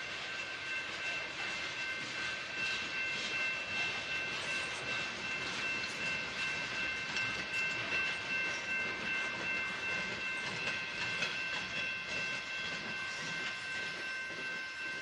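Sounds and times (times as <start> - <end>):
high-pitched ringing tone: 0.0 - 15.0
train wheels rumbling: 0.0 - 15.0
wheels clicking over rail joints: 4.8 - 13.5.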